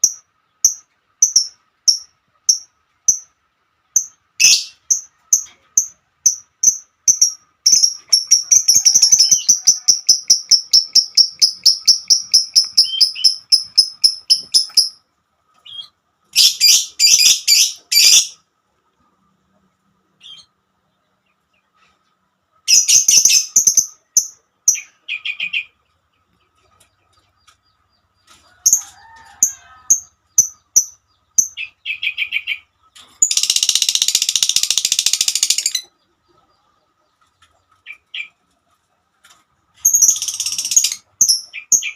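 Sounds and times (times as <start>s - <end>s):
bird chirping: 0.0s - 38.6s, 39.8s - 41.9s
harsh scratchy bird chatter: 6.3s - 15.0s, 33.0s - 35.9s, 39.8s - 41.9s.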